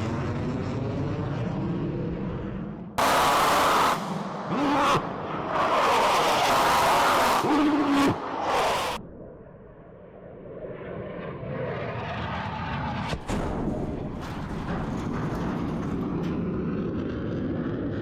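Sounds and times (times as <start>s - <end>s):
aircraft engine noise: 0.0s - 9.8s
loud sound: 3.0s - 9.0s.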